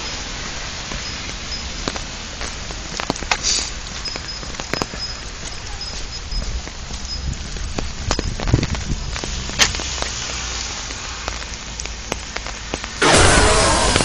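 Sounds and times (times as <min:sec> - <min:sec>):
raindrops ticking on microphone: 0:00.0 - 0:13.0
rain falling: 0:00.0 - 0:14.0
low rumble: 0:13.0 - 0:14.0.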